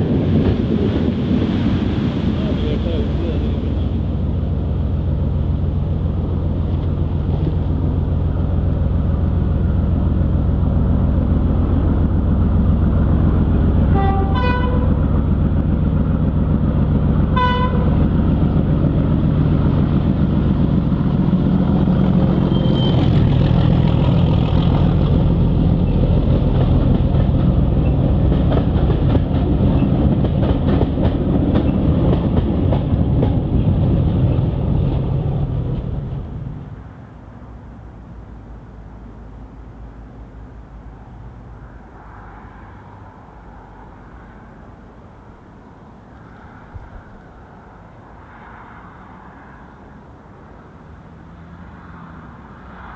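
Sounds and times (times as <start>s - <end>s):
steam locomotive rumbling: 0.0s - 37.6s.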